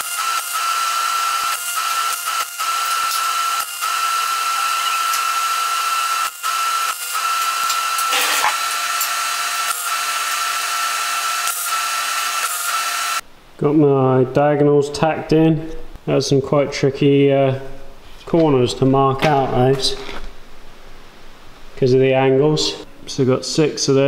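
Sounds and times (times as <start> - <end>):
power tool whining: 0.0 - 13.2.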